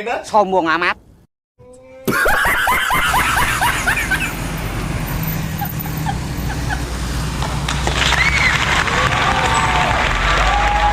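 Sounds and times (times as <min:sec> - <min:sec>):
vehicle engine droning: 0:03.0 - 0:10.9.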